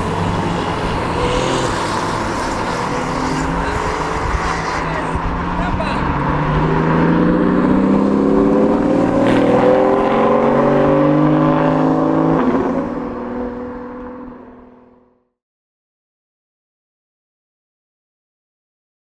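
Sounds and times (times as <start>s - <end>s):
sports car accelerating: 0.0s - 15.2s.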